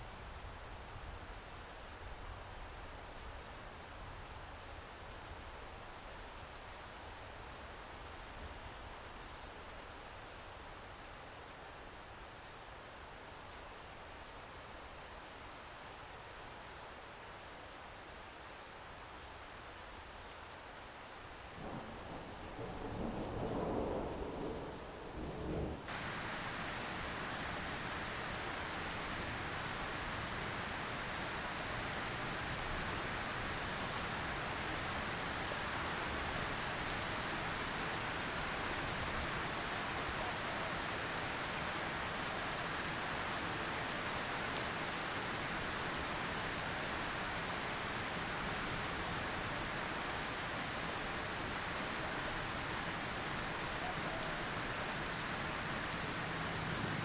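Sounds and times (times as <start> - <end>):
steady rainfall: 0.0 - 57.0.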